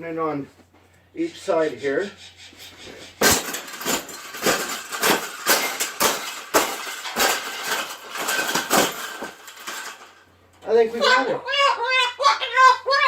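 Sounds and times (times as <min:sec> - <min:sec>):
wire cage bars clanking: 0:02.8 - 0:11.2.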